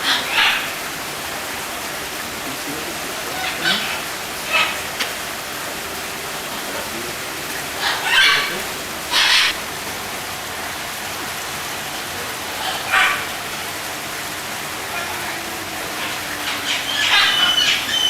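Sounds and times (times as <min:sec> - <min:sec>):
rain-like hiss: 0:00.0 - 0:18.0
short bird calls: 0:07.6 - 0:09.6.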